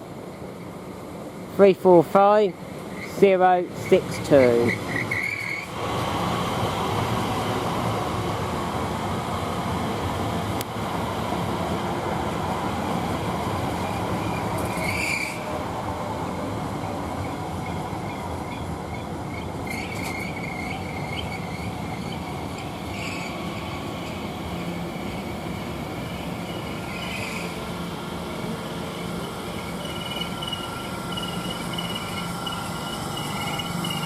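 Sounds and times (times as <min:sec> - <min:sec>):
train rumbling into platform: 0:00.0 - 0:34.0
high wheel squeals: 0:04.3 - 0:05.8, 0:13.8 - 0:15.5, 0:17.6 - 0:24.8, 0:25.9 - 0:27.9, 0:28.8 - 0:34.0.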